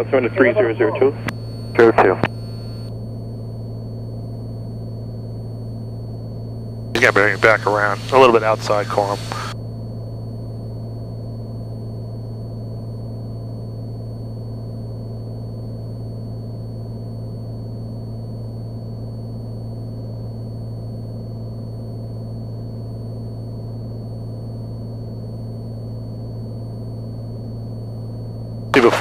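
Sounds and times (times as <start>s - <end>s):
aircraft engine and propeller droning: 7.0s - 9.6s
thin high-pitched whine: 7.0s - 9.6s.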